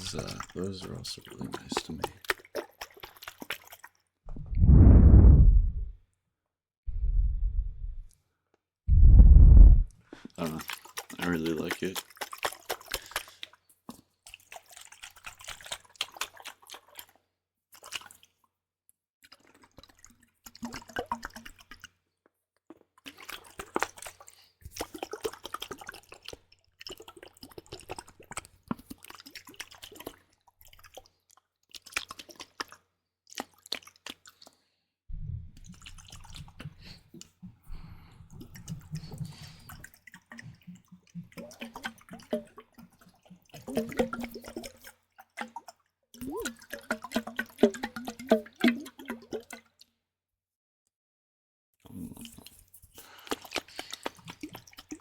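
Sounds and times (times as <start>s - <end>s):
wet crackly liquid sounds: 0.0s - 4.3s, 9.9s - 50.0s, 51.8s - 55.0s
low hum: 4.3s - 6.0s, 6.9s - 8.1s, 8.9s - 9.9s, 35.1s - 35.6s.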